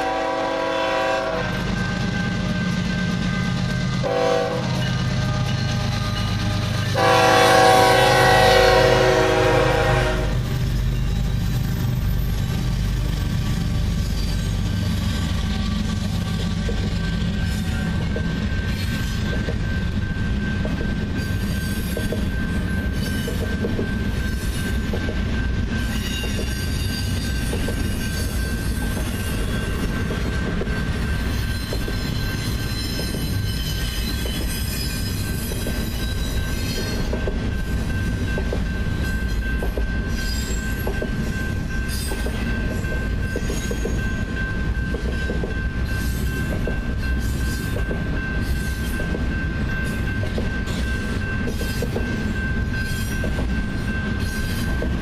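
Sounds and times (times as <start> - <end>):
train wheels rumbling on rails: 0.0 - 55.0
clacks from train cars: 15.9 - 55.0.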